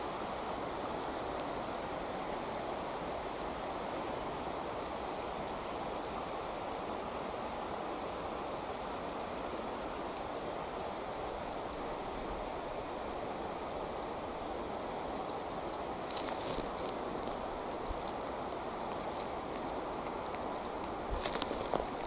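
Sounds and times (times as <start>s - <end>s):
creek water flowing: 0.0s - 22.0s
high crackle or rustle: 15.5s - 22.0s.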